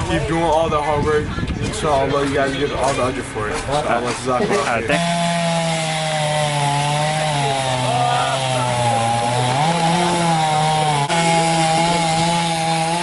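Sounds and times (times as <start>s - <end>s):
chainsaw cutting wood: 4.0s - 13.0s.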